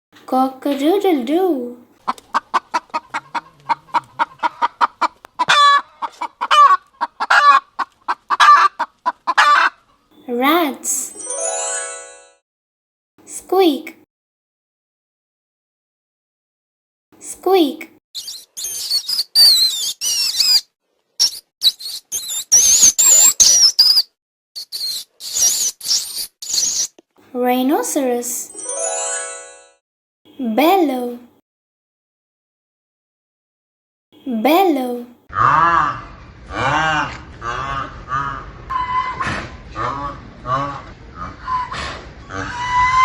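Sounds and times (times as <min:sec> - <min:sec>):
chicken clucking: 0:02.0 - 0:10.0
chicken squawking: 0:02.0 - 0:10.0, 0:18.2 - 0:24.0, 0:24.6 - 0:26.9, 0:35.3 - 0:43.0
rats squeaking: 0:18.2 - 0:27.0.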